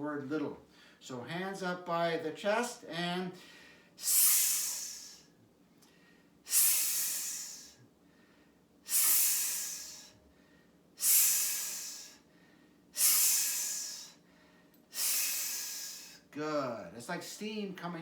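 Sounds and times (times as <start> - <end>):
person hissing through teeth: 4.0 - 5.3, 6.5 - 7.8, 8.8 - 10.2, 11.0 - 12.2, 13.0 - 14.2, 14.9 - 16.3.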